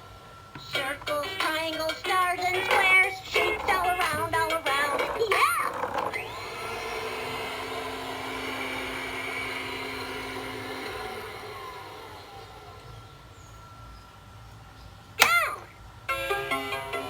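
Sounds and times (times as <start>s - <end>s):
toy vacuum whooshing hum: 0.6s - 13.1s.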